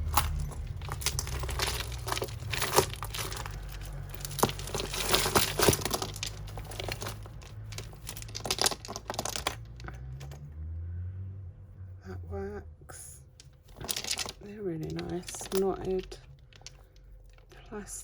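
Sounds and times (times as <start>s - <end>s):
plastic bag crinkling: 0.0s - 9.8s, 13.7s - 16.8s
beads and chain clicking: 0.0s - 10.4s, 13.2s - 17.6s.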